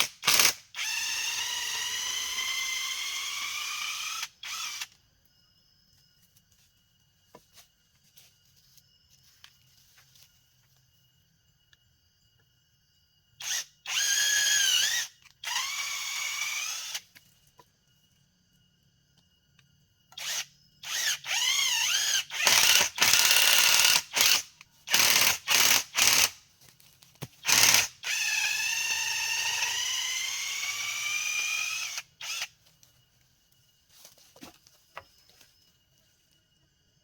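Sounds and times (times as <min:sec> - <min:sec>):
insects trilling: 0:00.0 - 0:37.0
cordless drill whirring: 0:00.2 - 0:04.9, 0:13.4 - 0:17.0, 0:20.2 - 0:26.3, 0:27.4 - 0:32.5.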